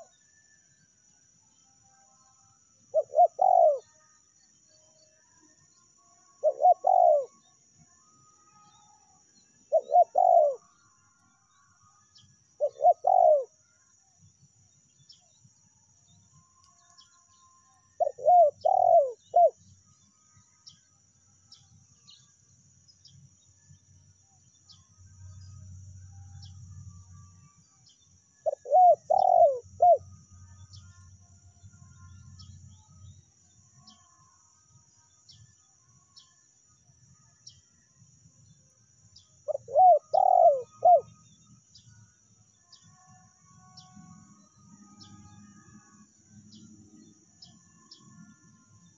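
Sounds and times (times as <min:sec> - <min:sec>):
dove cooing: 0:02.9 - 0:03.8, 0:06.4 - 0:07.3, 0:09.7 - 0:10.6, 0:12.6 - 0:13.5, 0:18.0 - 0:19.6, 0:28.4 - 0:30.0, 0:39.5 - 0:41.1.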